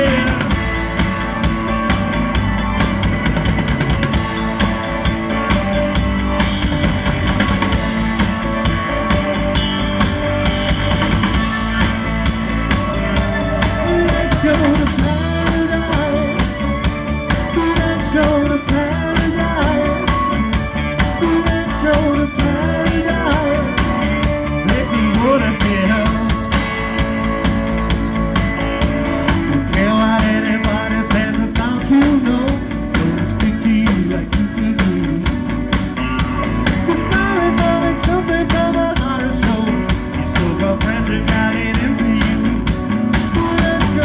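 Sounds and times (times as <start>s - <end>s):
person singing: 0.0s - 1.0s, 11.6s - 27.0s, 29.4s - 35.4s, 36.6s - 44.0s
drum kit beat: 0.0s - 44.0s
electric guitar and bass: 0.0s - 44.0s.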